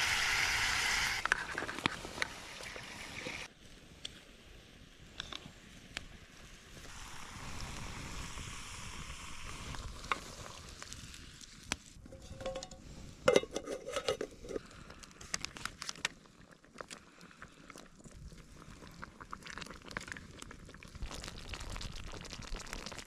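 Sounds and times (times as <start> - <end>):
food sizzling in a pan: 0.0 - 1.2, 6.7 - 11.6
utensil stirring and scraping: 12.1 - 14.6.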